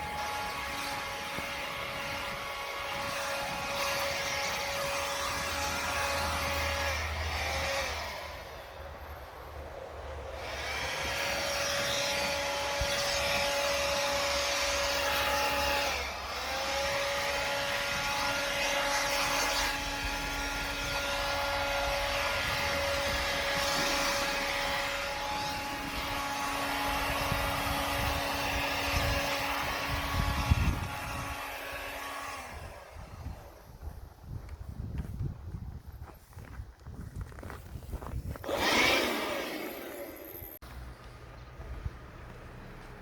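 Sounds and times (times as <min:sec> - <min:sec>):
leaf blower running: 0:00.0 - 0:08.7, 0:10.2 - 0:33.6, 0:38.4 - 0:40.6.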